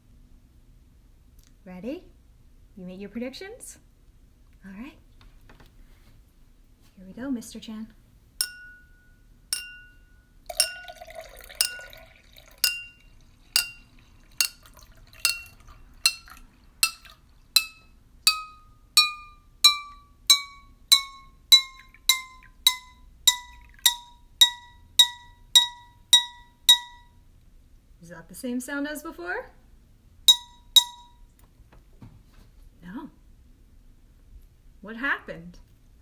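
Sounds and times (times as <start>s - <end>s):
spoon tapping drinking glass: 8.4s - 27.1s, 30.3s - 31.2s
water pouring into glass: 10.5s - 17.8s, 20.9s - 26.9s.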